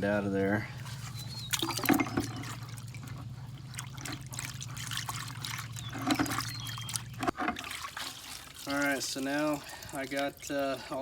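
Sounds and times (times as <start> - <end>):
wet squishing of grease: 0.8 - 9.0.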